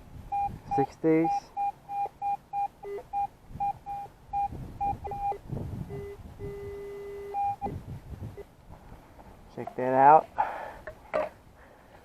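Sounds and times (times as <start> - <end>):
metal detector high beeps: 0.3 - 7.7
metal detector lower beeps: 0.3 - 7.8.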